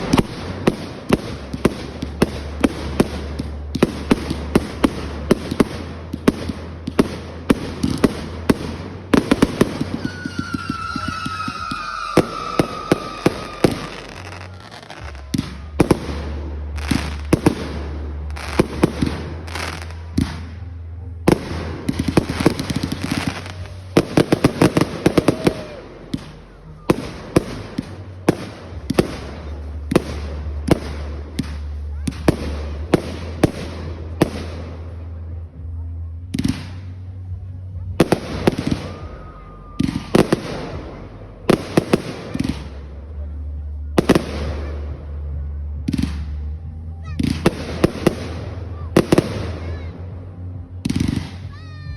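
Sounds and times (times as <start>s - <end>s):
fireworks bangs and crackles: 0.0s - 51.9s
whistling firework: 7.0s - 20.4s, 21.9s - 32.5s, 38.1s - 40.9s.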